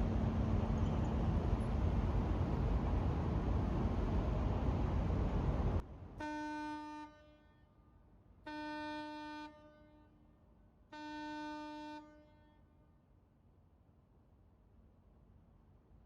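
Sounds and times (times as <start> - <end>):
ship's horn blasts: 6.2 - 7.8, 8.4 - 10.2, 10.9 - 12.8.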